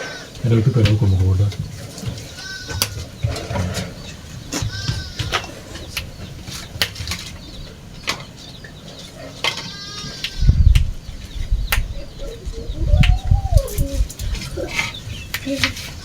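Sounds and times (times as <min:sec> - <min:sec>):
low rumbles: 0:10.5 - 0:15.3
low wavering animal call: 0:11.9 - 0:14.9
short pitched animal call: 0:12.2 - 0:14.8.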